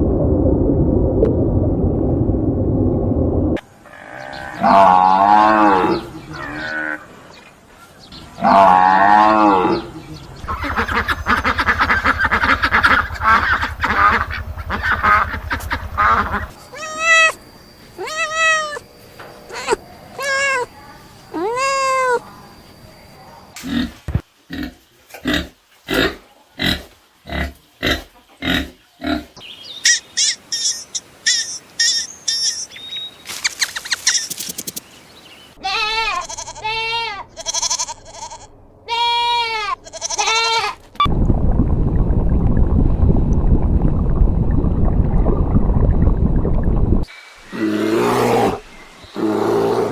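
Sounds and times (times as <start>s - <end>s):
rising-and-falling animal calls: 8.4s - 22.2s
drawn-out animal calls: 10.4s - 22.3s
high chirping: 29.4s - 35.6s
sharp animal clicks: 33.4s - 34.9s.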